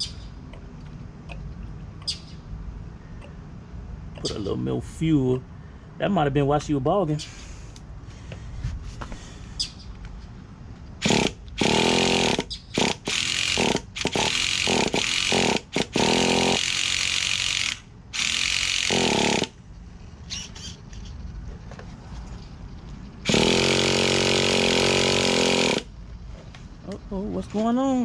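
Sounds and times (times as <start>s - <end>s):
small nitro engine revving: 23.2s - 25.9s.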